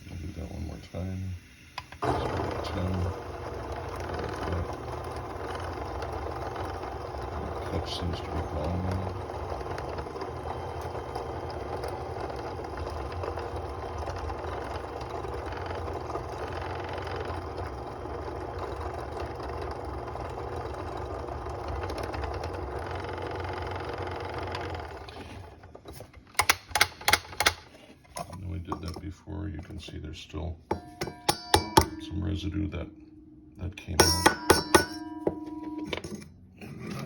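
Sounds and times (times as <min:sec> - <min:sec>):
burr grinder motor running: 0:00.0 - 0:27.8.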